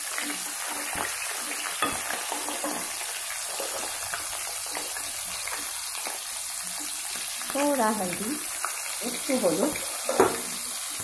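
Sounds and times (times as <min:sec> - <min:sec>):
potatoes sizzling in hot oil: 0:00.0 - 0:11.0
metal spatula scraping pan: 0:00.1 - 0:05.6.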